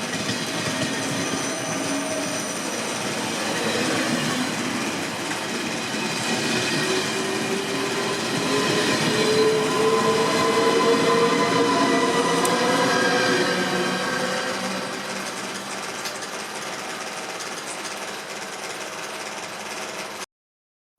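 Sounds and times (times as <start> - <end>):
train running on rails: 0.0 - 20.2.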